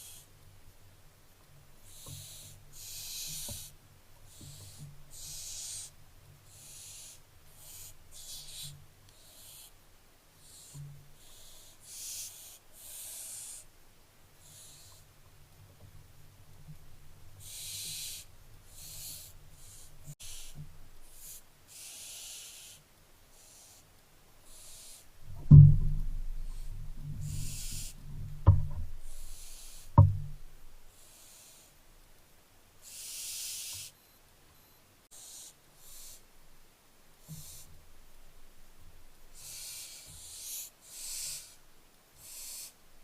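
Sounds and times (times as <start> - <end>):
owl chicks hissing calls: 0.0 - 0.4, 1.8 - 9.8, 10.4 - 13.7, 14.4 - 15.2, 17.4 - 25.2, 26.4 - 31.8, 32.8 - 34.0, 35.1 - 36.3, 37.2 - 37.8, 39.3 - 42.8.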